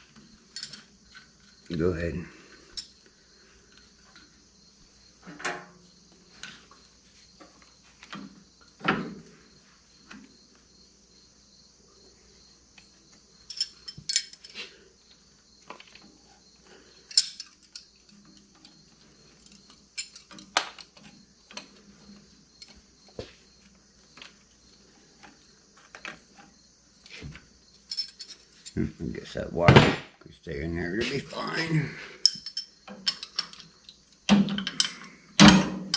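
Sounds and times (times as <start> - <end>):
metal wrenches clinking: 0.5 - 1.2, 13.4 - 14.7, 17.1 - 18.8, 19.4 - 21.0, 27.8 - 28.8, 31.1 - 33.7, 34.4 - 35.9.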